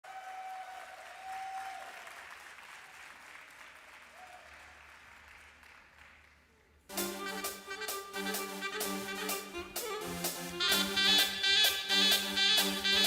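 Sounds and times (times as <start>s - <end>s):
audience applause: 0.0s - 6.6s.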